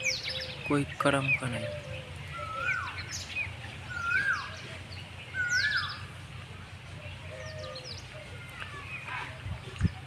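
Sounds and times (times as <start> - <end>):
bird whistled call: 1.8 - 4.6, 5.3 - 6.1.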